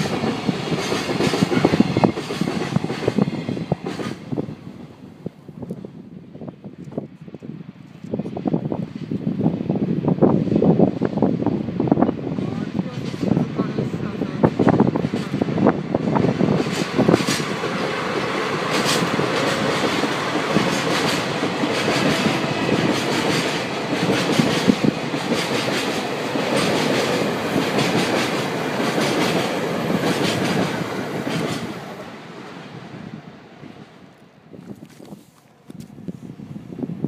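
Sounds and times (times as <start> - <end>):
freight train clickety-clack: 0.0 - 4.8, 10.2 - 32.6.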